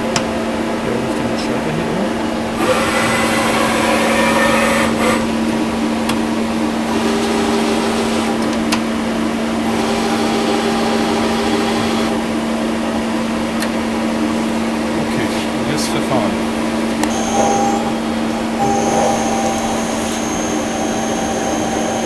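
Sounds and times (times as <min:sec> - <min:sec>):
lathe humming: 0:00.0 - 0:22.0
hissing whir: 0:00.1 - 0:22.0.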